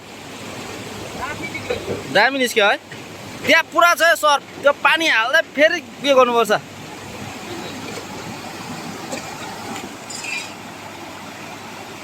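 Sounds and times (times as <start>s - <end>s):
river water rushing: 0.0s - 12.0s
light clinks: 10.0s - 10.6s.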